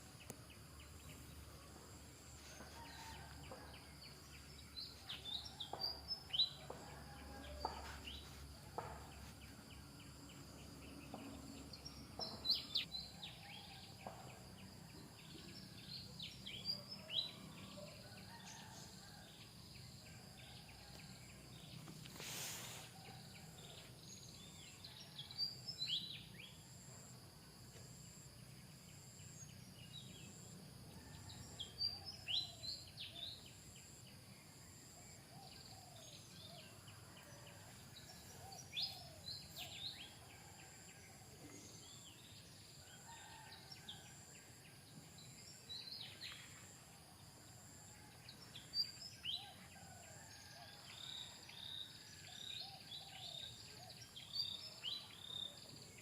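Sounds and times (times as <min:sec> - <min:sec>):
insect drone: 0:00.0 - 0:56.0.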